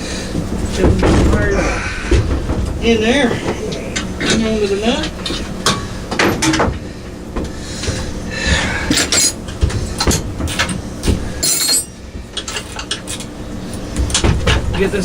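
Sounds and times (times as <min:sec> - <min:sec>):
hand tools clinking on metal: 0:08.9 - 0:09.4, 0:11.4 - 0:13.3.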